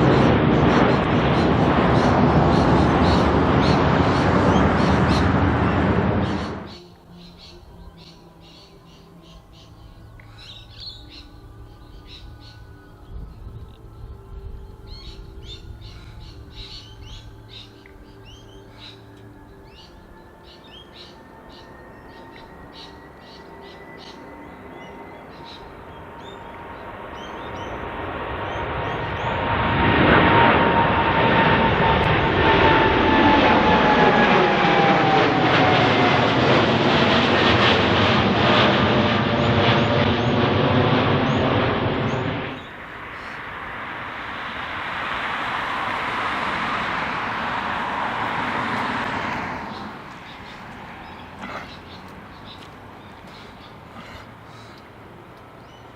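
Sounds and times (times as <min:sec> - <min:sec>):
jet airliner taking off: 0:00.0 - 0:06.8, 0:08.4 - 0:55.9
small birds chirping: 0:49.7 - 0:54.9.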